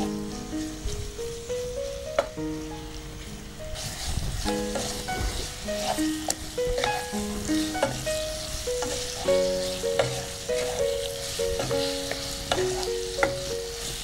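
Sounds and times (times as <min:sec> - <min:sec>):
background music: 0:00.0 - 0:14.0
chicken sizzling in oil: 0:03.2 - 0:14.0
wooden spatula scraping a pan: 0:03.8 - 0:14.0.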